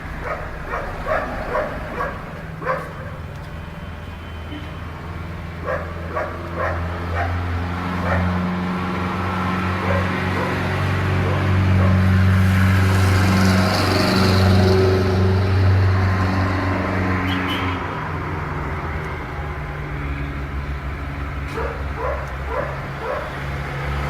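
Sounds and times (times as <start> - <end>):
dog barks: 0.2 - 3.2, 5.6 - 8.4, 9.8 - 12.2, 21.5 - 23.4.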